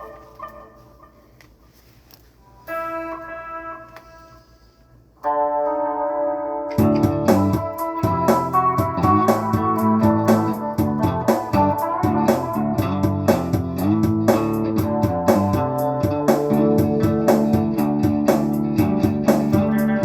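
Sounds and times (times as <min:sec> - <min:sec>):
guitar chord ringing: 0:02.4 - 0:04.5, 0:05.2 - 0:20.0
rock band playing a beat: 0:06.7 - 0:20.0.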